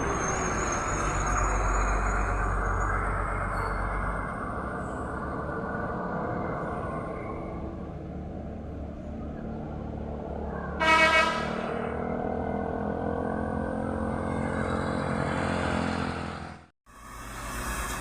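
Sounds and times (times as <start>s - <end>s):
truck engines running: 0.0s - 18.0s
truck horn blast: 10.8s - 12.1s.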